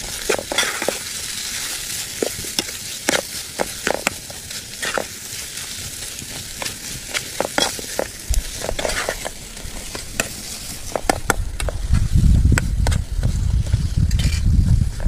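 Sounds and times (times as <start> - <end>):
chicken sizzling in oil: 0.0 - 13.9
metal spatula scraping pot: 0.2 - 1.0, 7.1 - 11.1.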